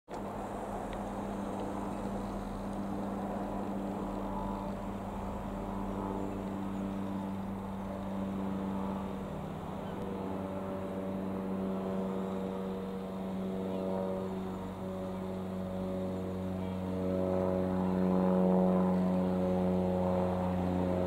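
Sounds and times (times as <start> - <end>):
propeller aircraft engine drone: 0.1 - 21.0.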